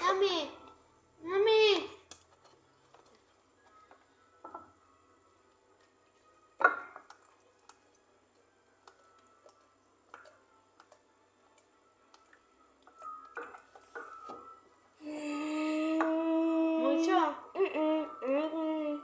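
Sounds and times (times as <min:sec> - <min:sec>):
utensils clicking and tapping: 0:01.7 - 0:04.7, 0:06.6 - 0:14.6.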